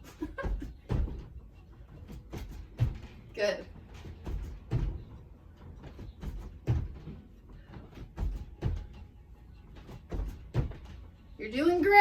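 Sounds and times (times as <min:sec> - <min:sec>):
feet thudding on floor: 0:00.2 - 0:01.4, 0:02.0 - 0:03.3, 0:03.9 - 0:09.1, 0:09.8 - 0:11.0.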